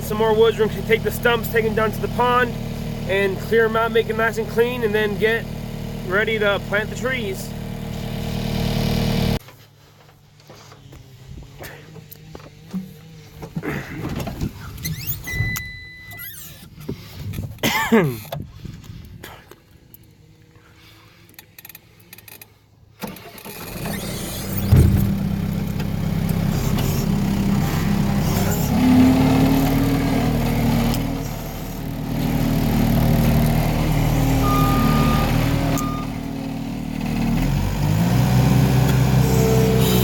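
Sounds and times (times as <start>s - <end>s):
diesel engine running: 0.0s - 15.0s, 16.8s - 40.0s
short beeps: 15.3s - 16.3s, 34.4s - 36.2s.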